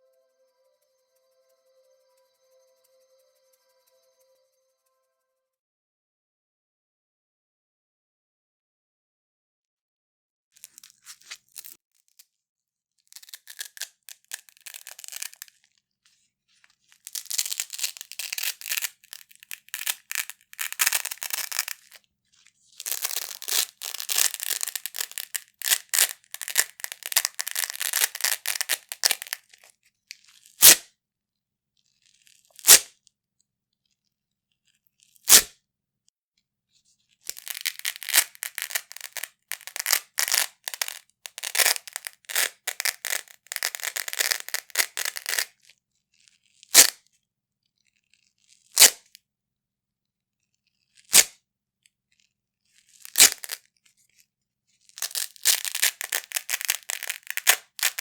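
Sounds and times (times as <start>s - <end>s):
velcro strips ripped apart: 10.6s - 11.8s, 13.1s - 15.7s, 16.9s - 22.0s, 22.7s - 30.9s, 32.0s - 32.9s, 35.1s - 35.5s, 37.2s - 45.6s, 46.5s - 47.0s, 48.4s - 49.1s, 50.9s - 51.4s, 52.8s - 53.7s, 54.8s - 58.0s.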